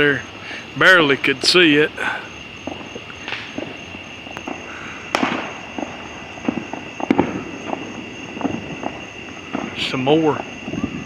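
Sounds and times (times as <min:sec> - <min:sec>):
fireworks bangs and pops: 0:00.0 - 0:11.0.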